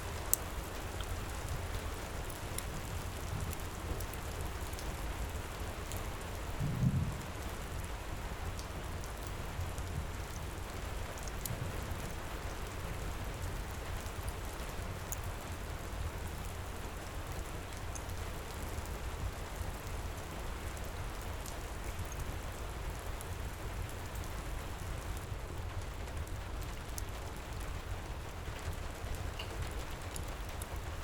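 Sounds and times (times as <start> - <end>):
heavy rain pouring: 0.1 - 31.0
deep low rumble: 6.6 - 7.3.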